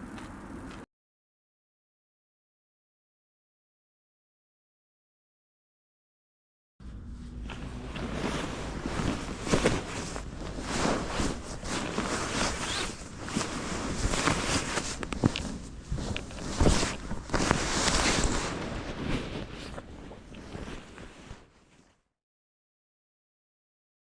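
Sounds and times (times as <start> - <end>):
knocks and rustling: 7.4 - 21.2.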